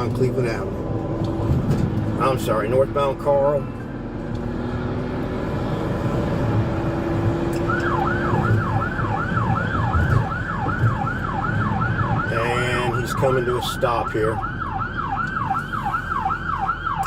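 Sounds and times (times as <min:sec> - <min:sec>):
car engine and road noise: 0:00.0 - 0:17.0
police siren yelping: 0:07.6 - 0:17.0.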